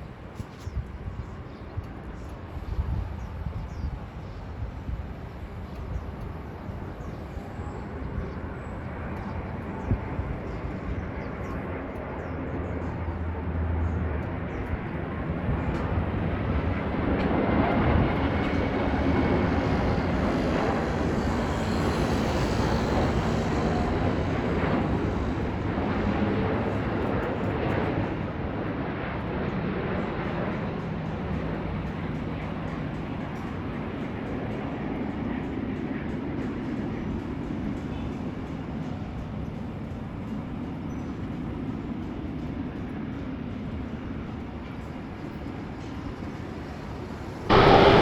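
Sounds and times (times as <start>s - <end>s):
jet airliner engine rush: 0.0s - 48.0s
steady low hum: 47.4s - 48.0s.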